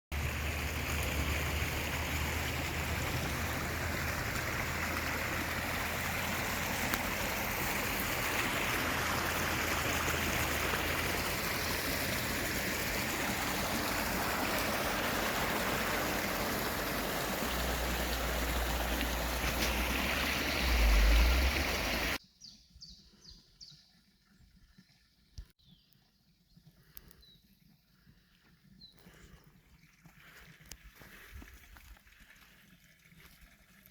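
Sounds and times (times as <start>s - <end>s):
rushing water: 0.1s - 22.2s.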